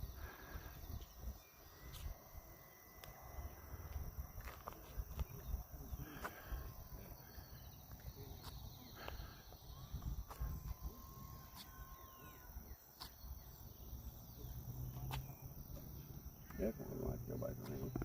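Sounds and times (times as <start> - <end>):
faint thin whine: 0.0 - 13.5
wind rumbling on microphone: 9.6 - 11.3.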